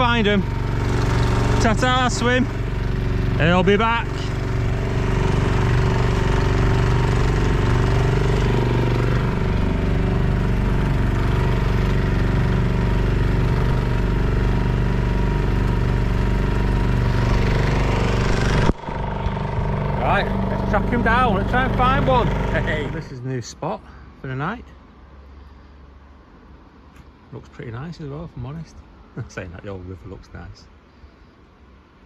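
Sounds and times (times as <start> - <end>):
outboard motor running: 0.0 - 23.1
wind: 0.0 - 32.0.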